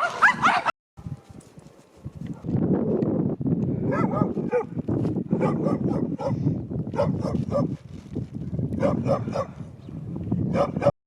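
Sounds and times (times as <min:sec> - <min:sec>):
dog barking: 0:00.0 - 0:00.7, 0:03.9 - 0:04.8, 0:05.4 - 0:07.8, 0:08.8 - 0:09.6, 0:10.5 - 0:10.9.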